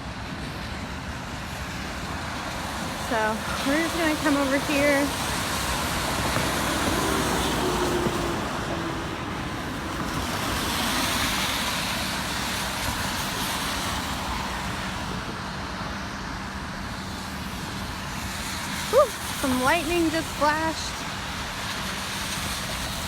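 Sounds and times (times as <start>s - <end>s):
tyres hissing on wet road: 0.0s - 23.0s
passing vehicle engines: 2.4s - 15.3s.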